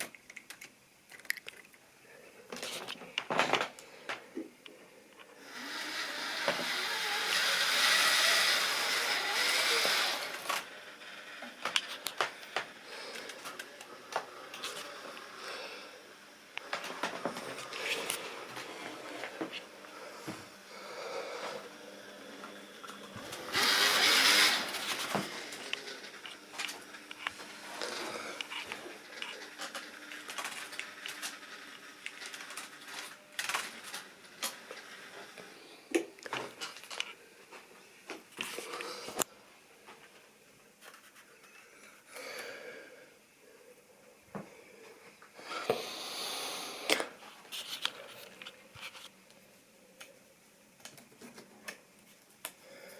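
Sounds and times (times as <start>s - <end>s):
small motor running: 5.4s - 16.8s, 17.4s - 33.1s.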